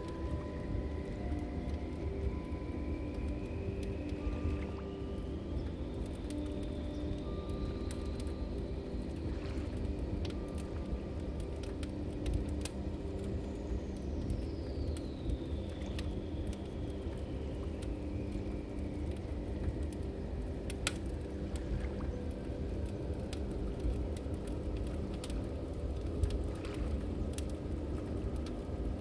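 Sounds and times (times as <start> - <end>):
ambient music drone: 0.0 - 29.0
log fire crackling: 0.0 - 29.0.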